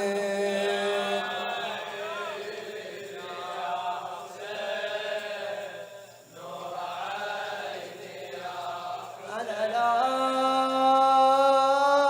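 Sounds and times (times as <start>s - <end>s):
man chanting a lament: 0.0s - 2.6s, 9.3s - 12.0s.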